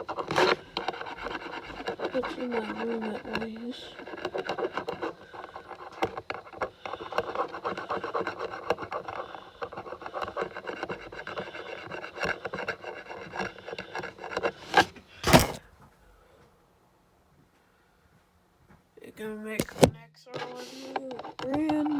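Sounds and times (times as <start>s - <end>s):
pen tip scratching: 0.0s - 15.6s, 20.7s - 21.9s.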